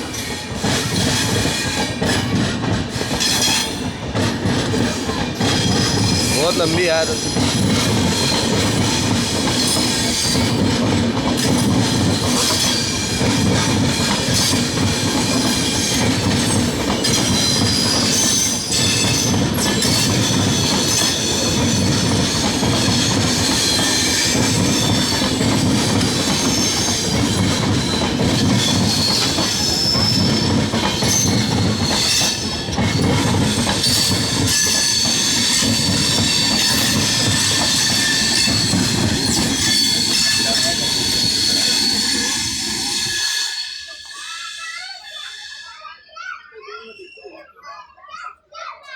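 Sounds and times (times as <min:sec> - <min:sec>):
train wheels rumbling on rails: 0:00.0 - 0:45.8
metallic wheel squeal: 0:15.4 - 0:47.5.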